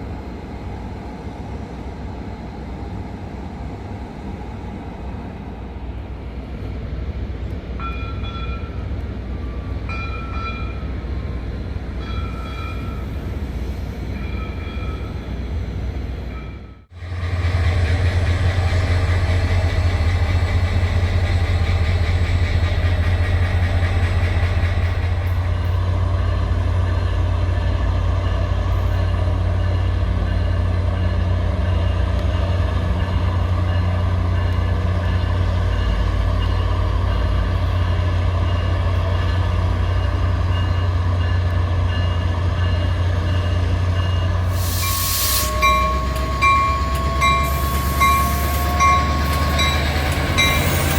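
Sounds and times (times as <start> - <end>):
diesel locomotive engine drone: 0.0 - 50.9
air hiss: 44.4 - 45.8.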